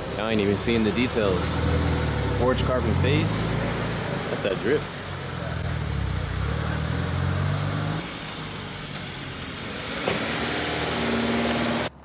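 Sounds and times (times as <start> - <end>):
car engine humming: 0.0 - 12.0.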